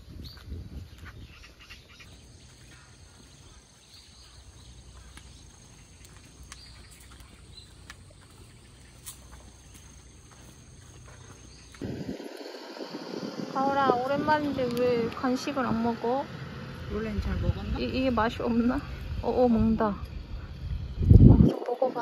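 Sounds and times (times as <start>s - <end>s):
high bird chirps: 0.2s - 13.9s
faint low outdoor rumble: 0.8s - 22.0s.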